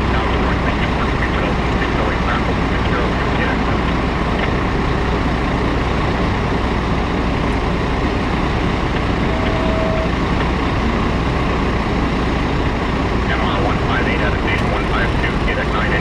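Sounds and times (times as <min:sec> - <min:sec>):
road traffic rumble: 0:00.0 - 0:16.0
faint steady tone: 0:08.6 - 0:12.2.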